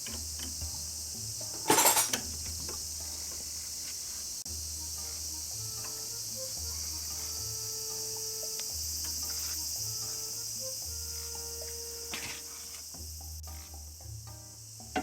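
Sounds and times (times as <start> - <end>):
metal clinking: 0.0 - 3.5
faint ticks: 0.0 - 14.7
high-pitched insect chirring: 0.0 - 15.0.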